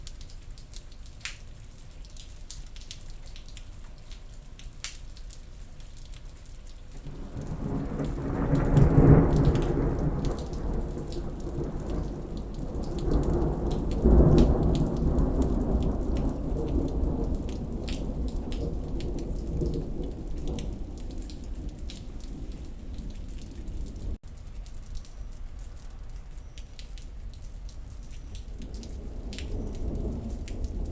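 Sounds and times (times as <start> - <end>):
steady rain: 0.0 - 30.9
thunder rolling: 7.1 - 24.2, 28.7 - 30.9.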